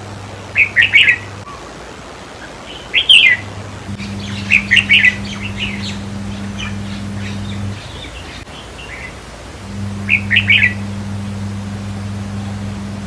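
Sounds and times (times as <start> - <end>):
bird singing chirpy notes: 3.0 - 13.0
steady low hum: 3.4 - 13.0.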